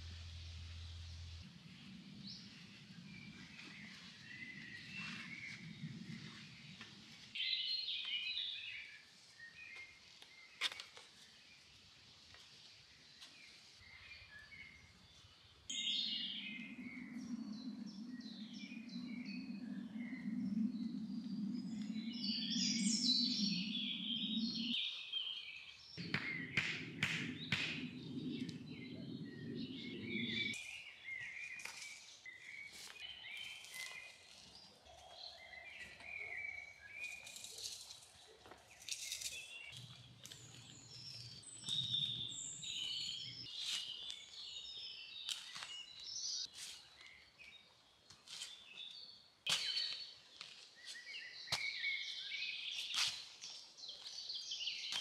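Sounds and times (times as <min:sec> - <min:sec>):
low even rumbling: 0:00.0 - 0:06.8, 0:16.0 - 0:24.8, 0:26.0 - 0:30.6
forest birds chirping: 0:00.0 - 0:55.0.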